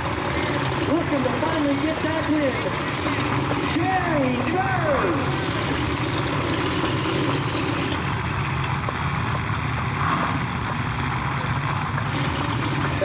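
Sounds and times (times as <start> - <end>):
car engines idling: 0.0 - 13.0.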